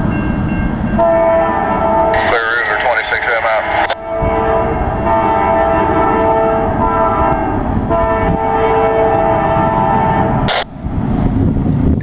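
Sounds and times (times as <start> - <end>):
freight train rumble: 0.0 - 12.0
locomotive air horn chord: 1.0 - 2.6, 3.8 - 10.6.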